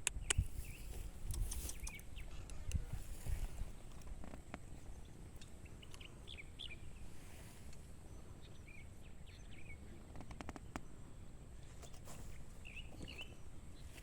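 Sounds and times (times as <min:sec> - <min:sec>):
sharp clicks: 0:00.0 - 0:00.6, 0:01.2 - 0:02.9
small birds chirping: 0:00.0 - 0:14.0.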